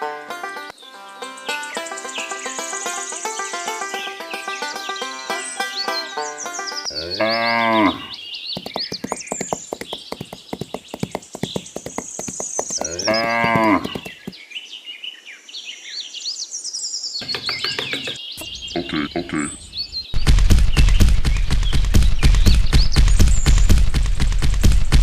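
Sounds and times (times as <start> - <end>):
birds chirping: 0.7 - 25.0
cow mooing: 6.9 - 8.1, 12.8 - 14.0.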